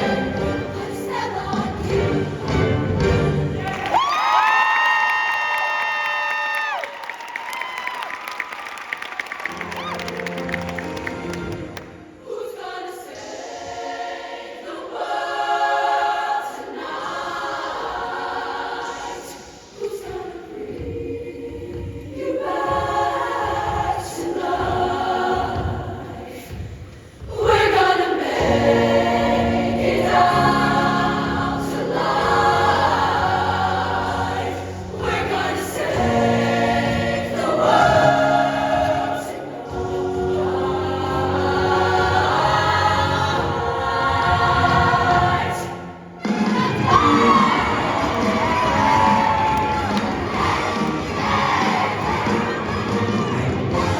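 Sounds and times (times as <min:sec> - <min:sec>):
band accompaniment: 0:00.0 - 0:03.8, 0:34.8 - 0:53.9
choir singing in harmony: 0:00.0 - 0:03.8, 0:09.5 - 0:53.9.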